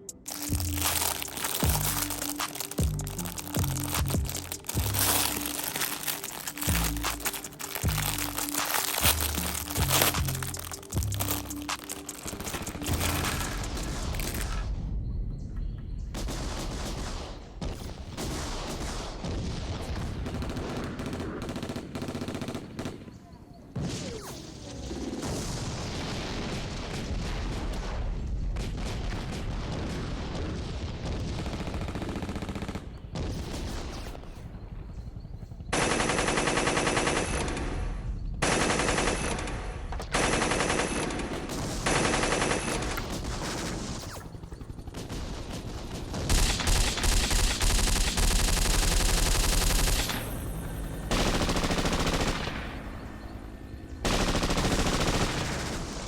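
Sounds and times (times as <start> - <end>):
machine gun bursts: 0.3 - 14.6, 38.4 - 44.2, 45.0 - 50.3, 51.1 - 52.6, 54.1 - 56.0.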